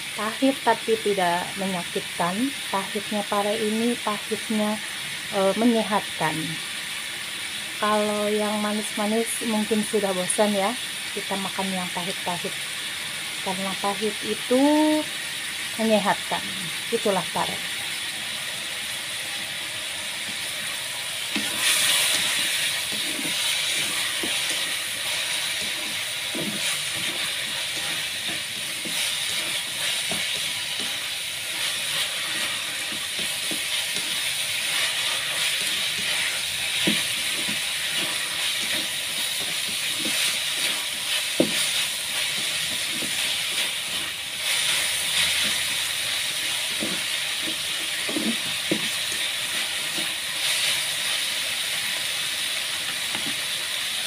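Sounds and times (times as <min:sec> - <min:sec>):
vegetables sizzling in hot oil: 0:00.0 - 0:54.0.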